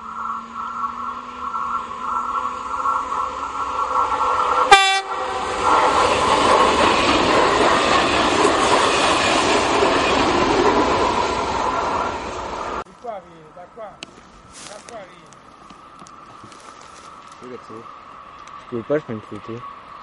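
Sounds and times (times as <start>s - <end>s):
train wheel and rail noise: 0.0s - 20.0s
train horn blast: 4.7s - 5.2s.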